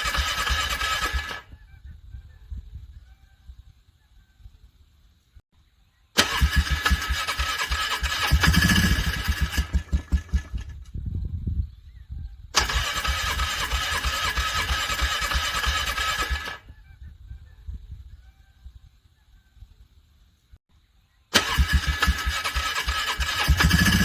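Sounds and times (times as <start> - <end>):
engine starter cranking: 0.0 - 1.5, 6.2 - 11.0, 12.6 - 16.6, 21.3 - 24.0
engine stumbling pulses: 7.9 - 11.0.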